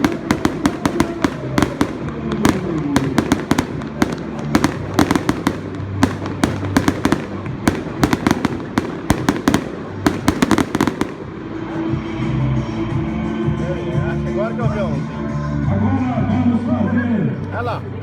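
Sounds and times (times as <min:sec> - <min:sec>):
fireworks bangs and cracks: 0:00.0 - 0:11.6.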